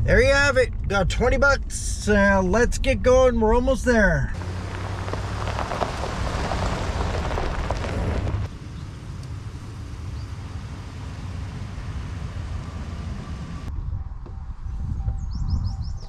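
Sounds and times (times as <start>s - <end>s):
truck engine and road noise: 0.0s - 16.0s
rain: 4.4s - 13.7s.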